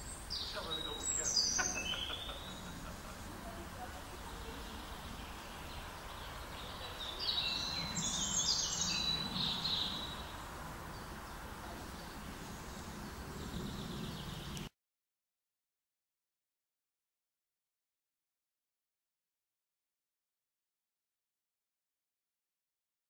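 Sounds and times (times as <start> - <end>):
low background hiss: 0.0 - 14.7
songbird chirping: 0.0 - 14.7.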